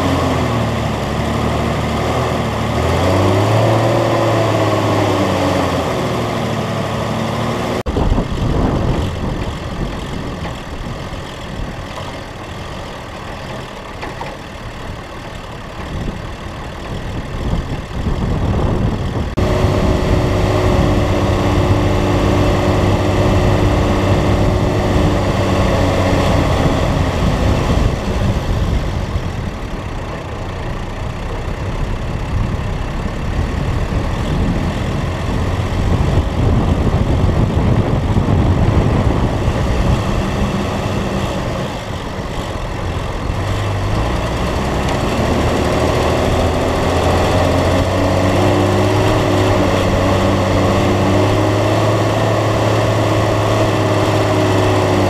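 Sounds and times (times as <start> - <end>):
car engine running: 0.0 - 55.0
wind rushing: 7.9 - 11.8, 17.1 - 30.0, 32.2 - 55.0.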